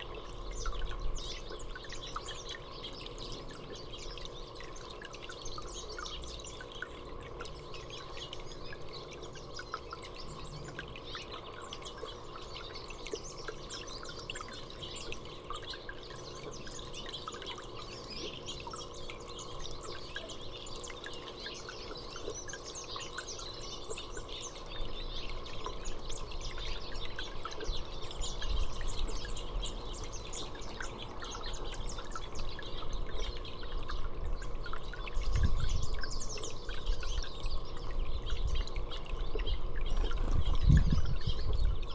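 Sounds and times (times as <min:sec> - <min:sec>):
faint steady hum: 0:00.0 - 0:41.9
small birds chirping: 0:00.0 - 0:41.9.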